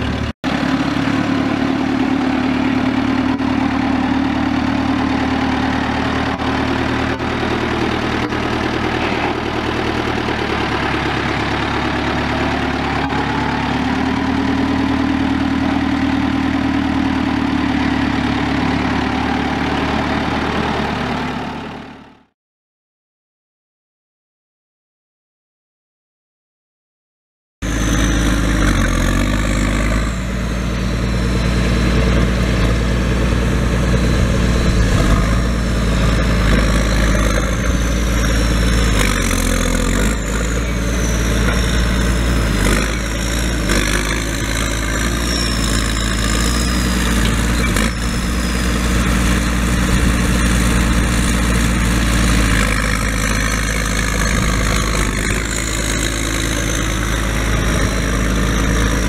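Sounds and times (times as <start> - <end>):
tractor engine running: 0.0 - 22.3, 27.6 - 59.0
high whine: 29.9 - 43.7.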